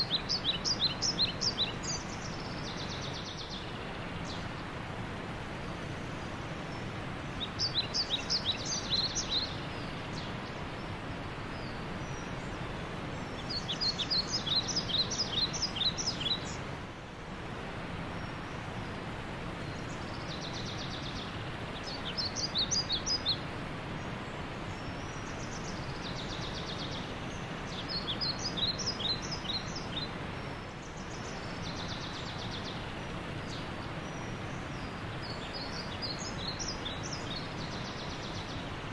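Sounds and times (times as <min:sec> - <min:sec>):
bird chirping: 0:00.0 - 0:04.5, 0:06.7 - 0:10.6, 0:13.1 - 0:16.6, 0:24.9 - 0:30.2
steady background noise: 0:00.0 - 0:38.9.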